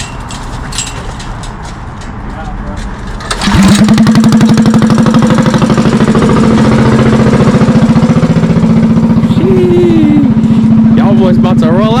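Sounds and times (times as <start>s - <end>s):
small engine idling: 3.2s - 12.0s.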